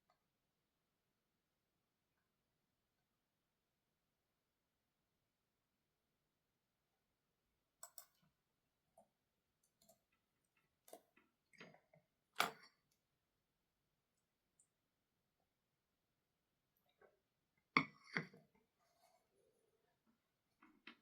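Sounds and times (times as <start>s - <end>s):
small objects clicking on a desk: 7.8s - 8.2s.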